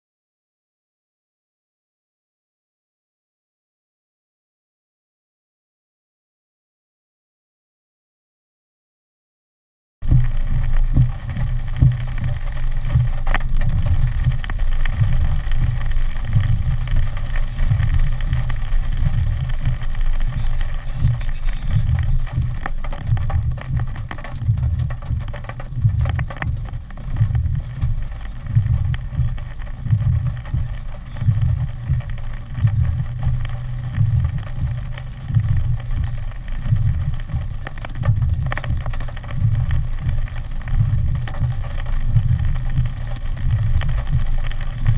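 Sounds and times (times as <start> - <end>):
wind buffeting microphone: 10.1 - 44.9.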